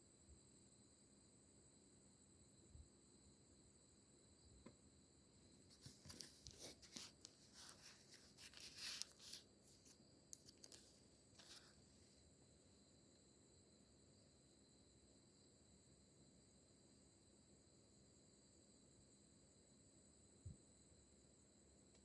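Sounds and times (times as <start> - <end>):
faint high-pitched hum: 0.0 - 22.0
faint rustling and crackling: 5.6 - 12.2
small clicks: 5.8 - 11.8.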